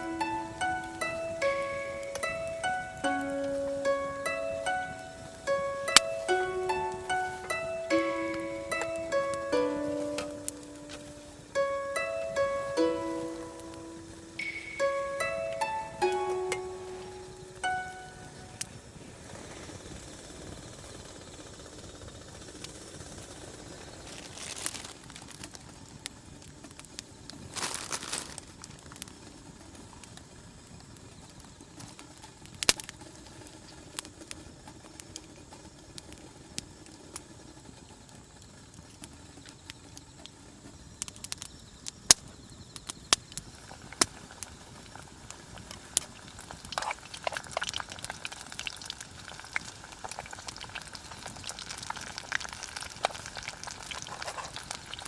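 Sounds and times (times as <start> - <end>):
campfire crackling: 0.0 - 55.0
oil sizzling: 45.2 - 55.0.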